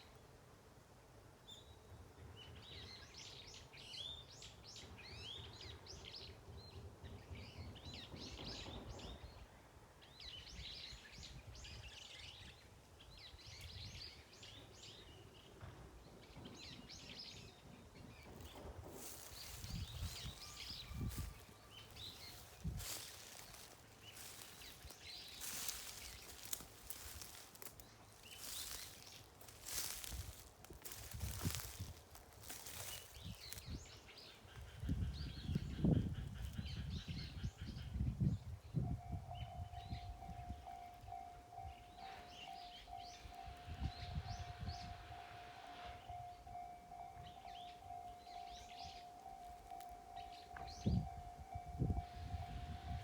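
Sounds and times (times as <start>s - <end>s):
small birds chirping: 18.2s - 38.2s
close rustling: 18.8s - 33.7s.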